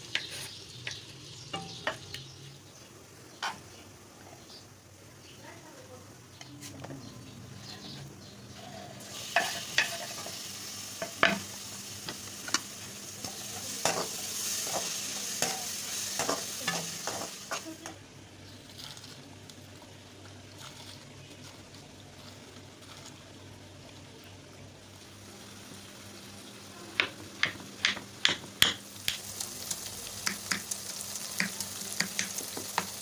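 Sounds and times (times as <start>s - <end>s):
food sizzling in a pan: 0.0s - 4.6s, 7.9s - 33.0s
spoon scraping a pan: 8.6s - 10.4s, 13.2s - 17.8s.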